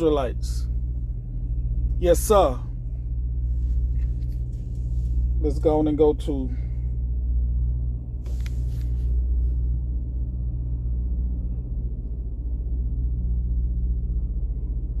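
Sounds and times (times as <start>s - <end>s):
low engine rumble: 0.0s - 15.0s
brief rustle: 8.2s - 9.1s.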